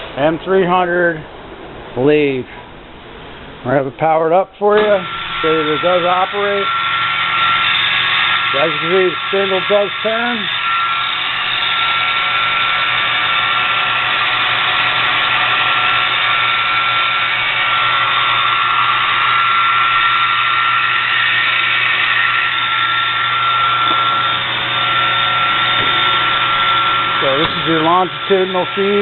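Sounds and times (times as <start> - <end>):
metal lathe running: 4.6 - 29.0.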